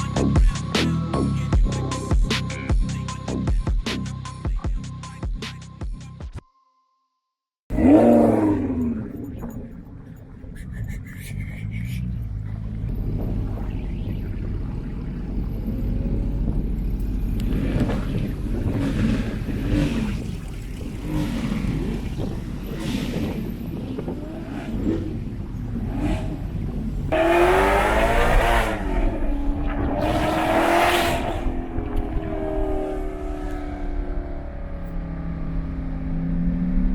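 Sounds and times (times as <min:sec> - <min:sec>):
engine revving high-pitched wail: 0:07.7 - 0:09.8, 0:10.5 - 0:36.9
car engine droning: 0:07.7 - 0:36.9.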